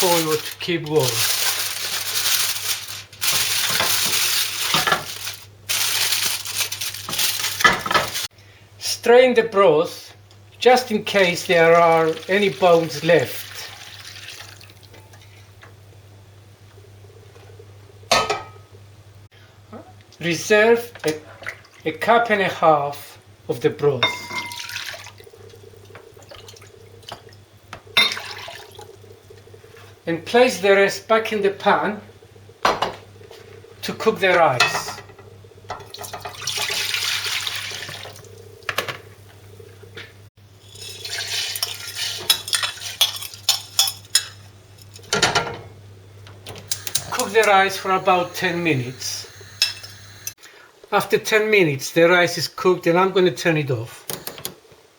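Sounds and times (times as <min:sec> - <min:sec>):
aluminium foil crinkling: 0:00.0 - 0:08.3
broth pouring into a jug: 0:11.5 - 0:15.4, 0:24.5 - 0:30.0, 0:35.4 - 0:39.8, 0:40.6 - 0:42.3.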